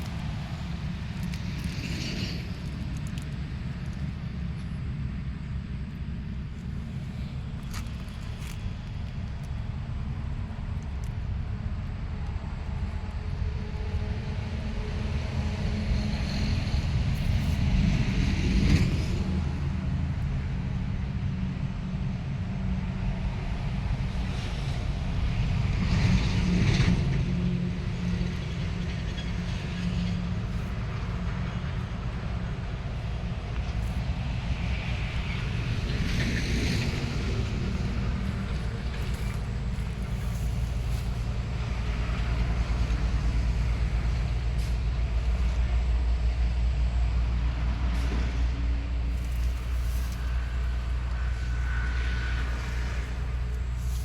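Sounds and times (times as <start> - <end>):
vehicle engine rumble: 0.0 - 54.0.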